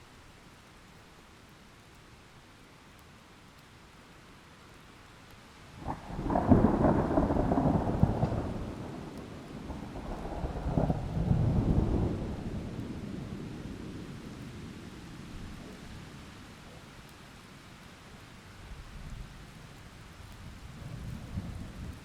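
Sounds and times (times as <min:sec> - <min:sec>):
rain hissing: 0:05.4 - 0:22.0
thunder rumbling: 0:05.8 - 0:15.7, 0:20.7 - 0:22.0.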